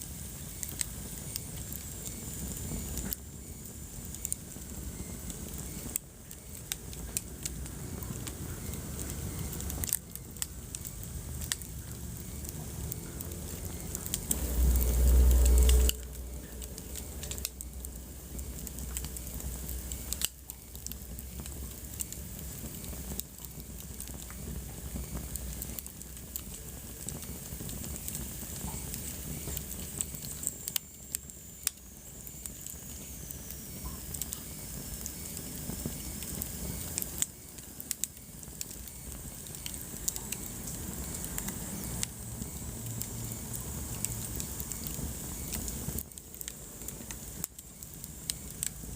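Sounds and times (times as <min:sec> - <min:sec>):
fire crackling in fireplace: 0:00.0 - 0:48.9
low rumble: 0:11.7 - 0:19.9.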